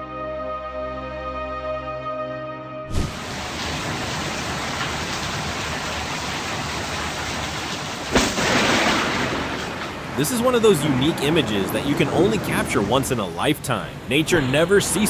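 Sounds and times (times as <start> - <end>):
heavy rain hissing: 2.9 - 15.0
thunder crack and rumble: 3.0 - 12.7.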